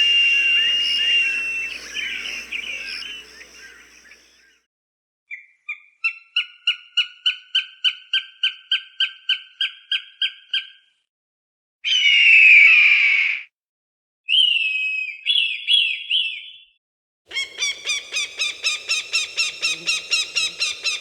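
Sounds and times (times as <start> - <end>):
hawk calling short notes: 0.0 - 4.3.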